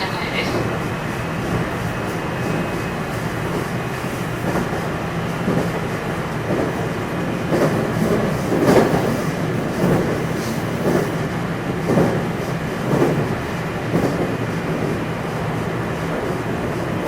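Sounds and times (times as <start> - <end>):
train wheels and motors rumbling: 0.0 - 17.0
thumps over rails: 7.5 - 14.9.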